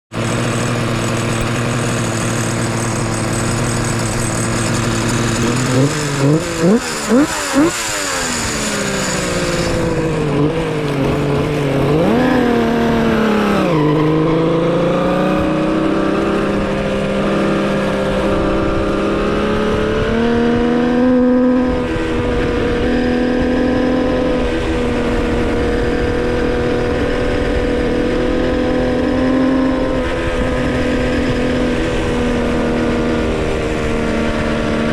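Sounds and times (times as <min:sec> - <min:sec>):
two-stroke motorcycle engine revving: 0:00.1 - 0:34.9.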